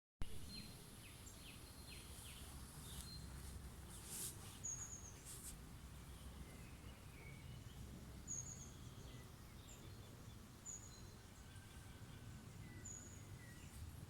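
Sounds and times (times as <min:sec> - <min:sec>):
songbirds chirping: 0:00.2 - 0:14.0
low background rumble: 0:04.9 - 0:14.0.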